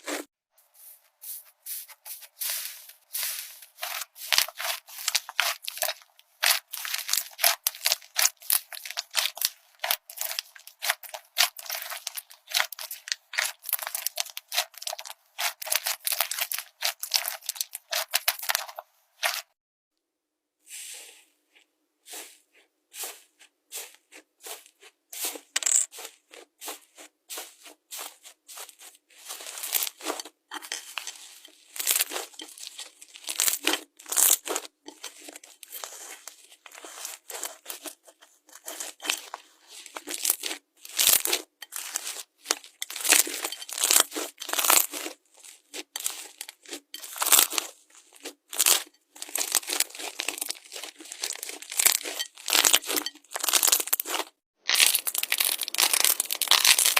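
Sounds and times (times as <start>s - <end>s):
slime crackling and popping: 3.8s - 19.4s, 40.0s - 47.7s, 48.5s - 56.9s.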